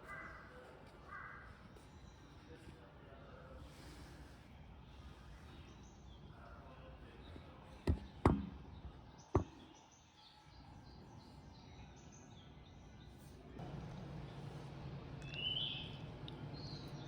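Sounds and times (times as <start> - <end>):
faint background noise: 0.0 - 17.0
sharp knocks: 7.9 - 8.6, 9.4 - 9.6.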